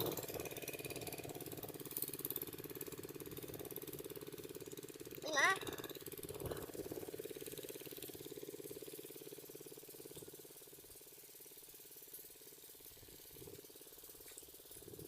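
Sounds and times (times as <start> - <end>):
diesel pump engine knocking: 0.0 - 11.4.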